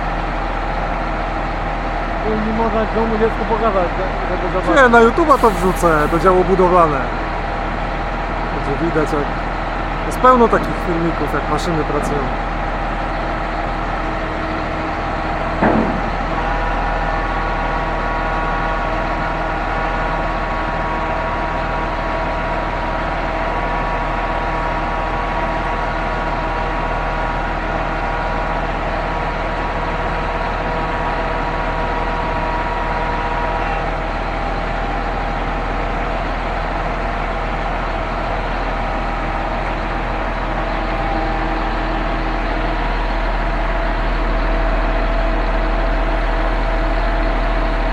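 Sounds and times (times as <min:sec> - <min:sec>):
concrete pump diesel engine: 0:00.0 - 0:47.9
steady whining tone: 0:05.2 - 0:06.7
single knock: 0:15.6 - 0:16.1.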